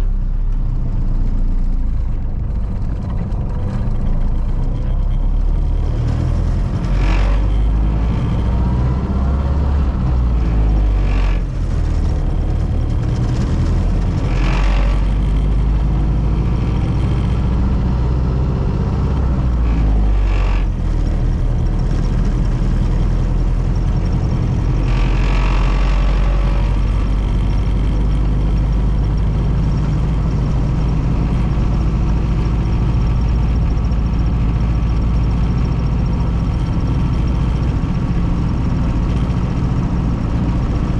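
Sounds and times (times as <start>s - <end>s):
car engine rumbling: 0.0s - 40.9s.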